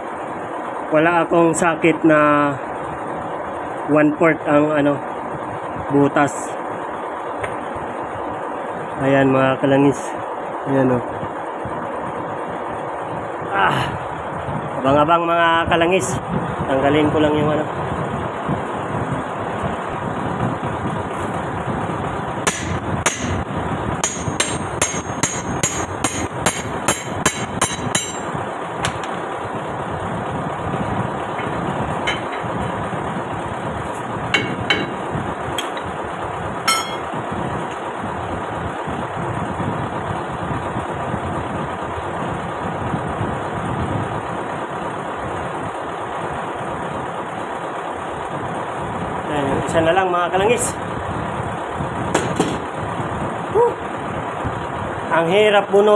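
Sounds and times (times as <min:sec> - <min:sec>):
truck engine droning: 0:20.5 - 0:38.6
hammer blows on steel: 0:22.5 - 0:23.4, 0:24.0 - 0:29.1, 0:36.7 - 0:37.1.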